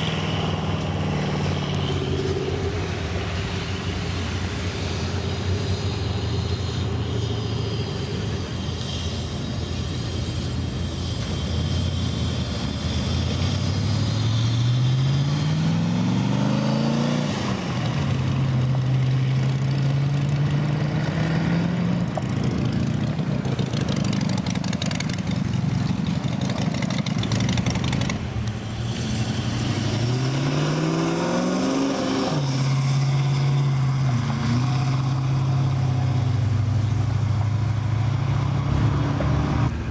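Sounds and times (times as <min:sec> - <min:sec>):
engines running: 0:00.0 - 0:39.9
car engine accelerating: 0:12.9 - 0:39.8.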